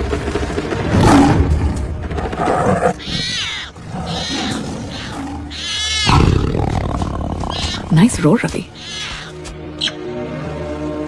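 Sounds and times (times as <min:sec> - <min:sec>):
tiger cub roaring: 0:02.4 - 0:07.9
forest animal calls: 0:02.8 - 0:10.0.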